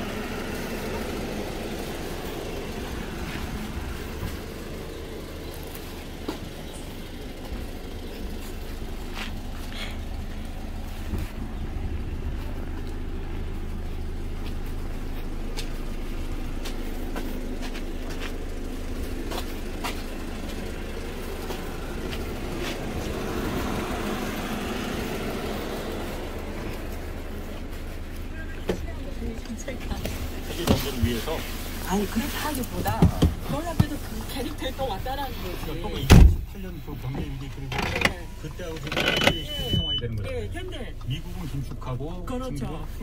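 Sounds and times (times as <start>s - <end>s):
car engine idling: 0.0s - 43.0s.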